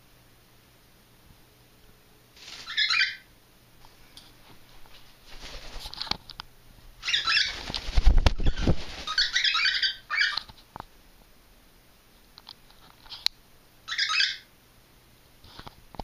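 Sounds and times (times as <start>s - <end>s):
bird wings flapping: 2.4s - 2.9s, 4.8s - 6.3s, 7.1s - 9.6s.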